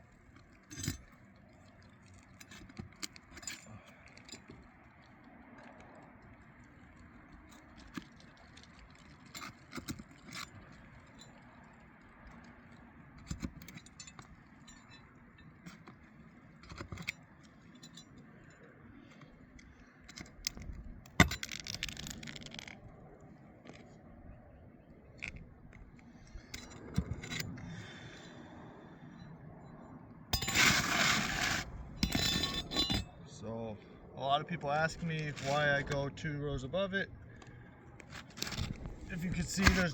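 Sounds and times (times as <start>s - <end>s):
pry bar clinking and scraping: 0.2s - 4.8s, 7.6s - 11.8s, 12.4s - 22.8s, 25.2s - 28.0s, 30.4s - 33.2s, 37.4s - 39.9s.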